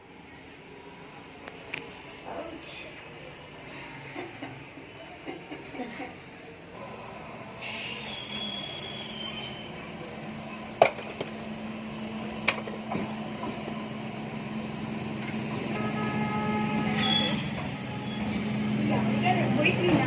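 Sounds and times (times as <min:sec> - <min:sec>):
train hum: 0:00.0 - 0:20.0
wheel squeal: 0:07.6 - 0:10.6, 0:16.4 - 0:19.2.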